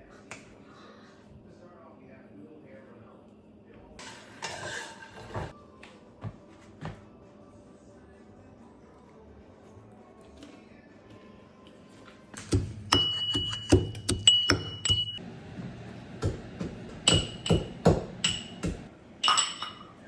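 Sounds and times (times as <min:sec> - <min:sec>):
kitchenware knocking and clinking: 0:12.4 - 0:15.2, 0:16.2 - 0:20.0.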